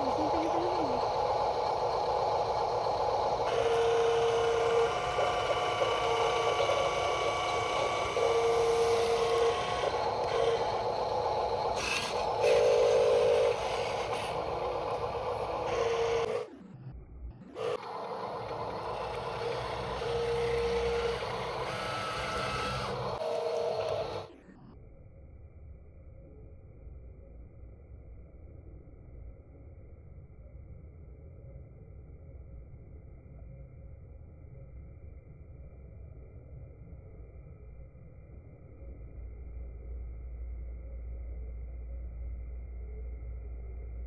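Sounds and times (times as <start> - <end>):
small motors and gears whining: 0.0 - 25.0
mechanical scraping: 0.1 - 16.5, 17.6 - 24.3.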